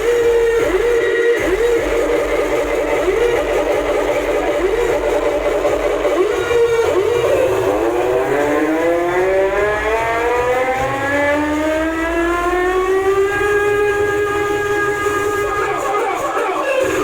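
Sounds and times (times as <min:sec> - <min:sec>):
siren-like tone through speakers: 0:00.0 - 0:17.0.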